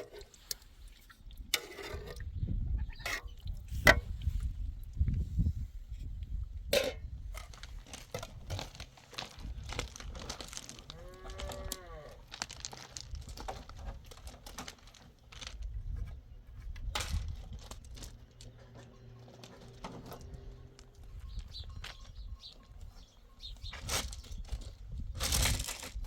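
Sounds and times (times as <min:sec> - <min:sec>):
dry grass and branches crackling: 0:03.7 - 0:26.0.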